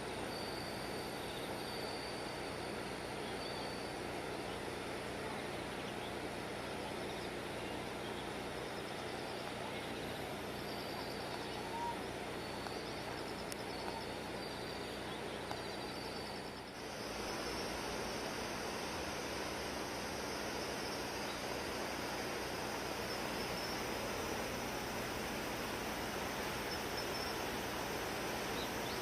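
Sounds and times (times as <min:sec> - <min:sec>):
faint high chirps: 0:06.9 - 0:29.0.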